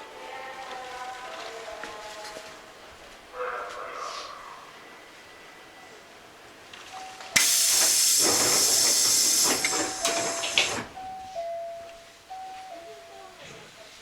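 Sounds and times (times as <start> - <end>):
train compressed air hiss: 7.4 - 10.9.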